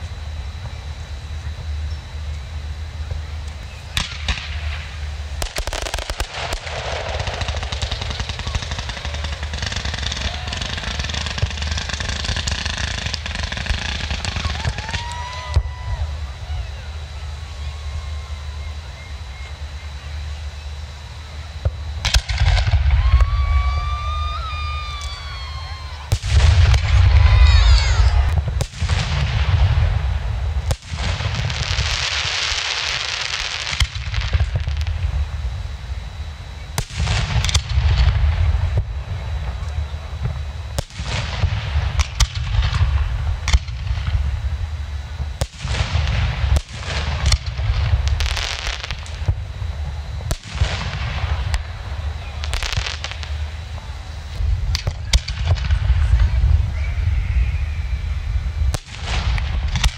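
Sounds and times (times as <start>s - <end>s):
firework whistle rising: 0.0s - 59.9s
fireworks booming: 0.0s - 59.9s
fireworks crackling: 0.0s - 59.9s
low rumble: 34.0s - 59.9s.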